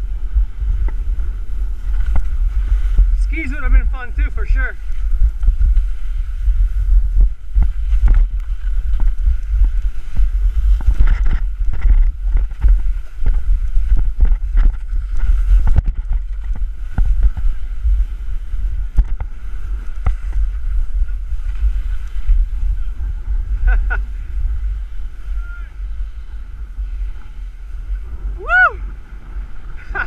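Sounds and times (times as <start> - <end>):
scraping hiss of sliding snow: 0.0 - 30.0
wind buffeting microphone: 0.0 - 30.0.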